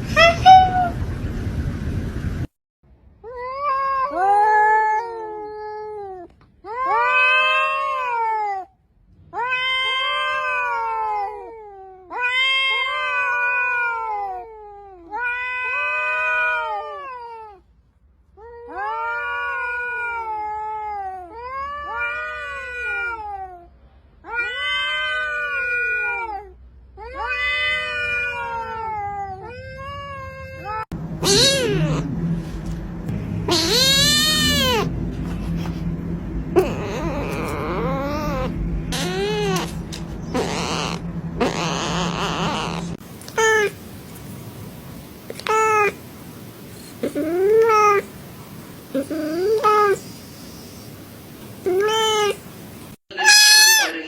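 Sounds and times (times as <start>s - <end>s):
cat meowing: 3.3s - 8.7s, 9.3s - 17.6s, 18.4s - 32.1s, 33.4s - 34.9s, 36.6s - 43.8s, 47.0s - 48.1s, 49.0s - 50.0s, 51.7s - 52.4s, 53.1s - 54.0s
higher-pitched cry: 30.6s - 32.2s, 33.4s - 35.0s, 36.5s - 43.8s, 53.1s - 54.0s.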